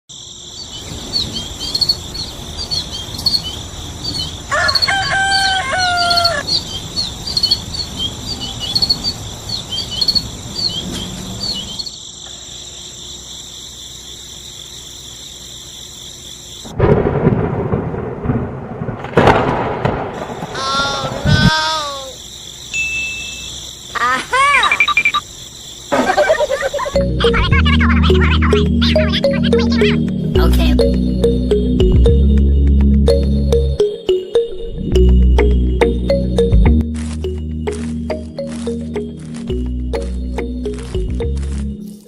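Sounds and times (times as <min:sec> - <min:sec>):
birds chirping: 0:00.4 - 0:12.0
rooster crowing: 0:04.5 - 0:06.4.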